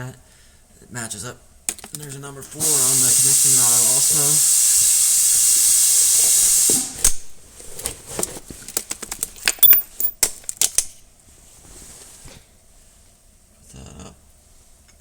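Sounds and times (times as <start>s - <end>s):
spray hissing: 2.6s - 7.0s
metallic clicks and clinks: 8.7s - 11.0s.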